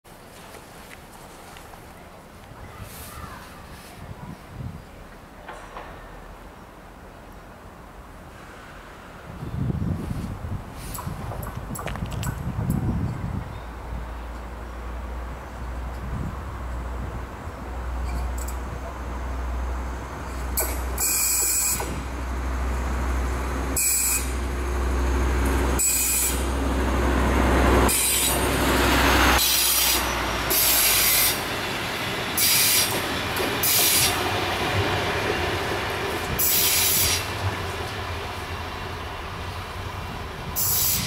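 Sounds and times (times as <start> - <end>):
train wheels rumbling on rails: 8.3 - 41.0
high-pitched wheel squeals: 21.0 - 21.9, 23.8 - 24.4, 25.8 - 26.4.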